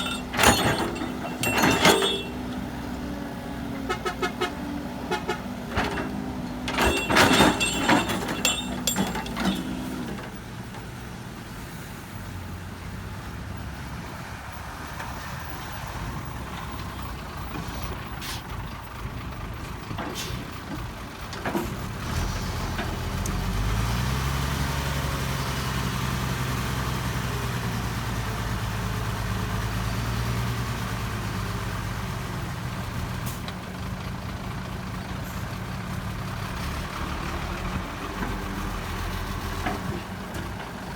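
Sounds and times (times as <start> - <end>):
heavy diesel engine running: 0.0 - 10.4.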